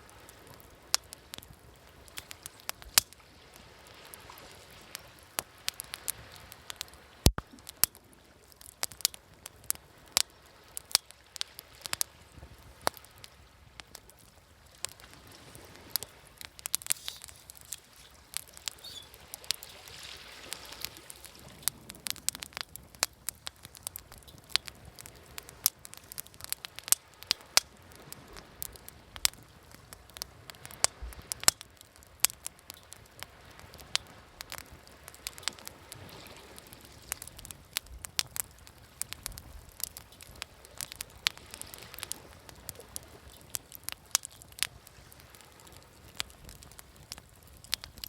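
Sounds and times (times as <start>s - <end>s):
bonfire crackling and popping: 0.0s - 48.0s
waves washing: 9.9s - 31.6s.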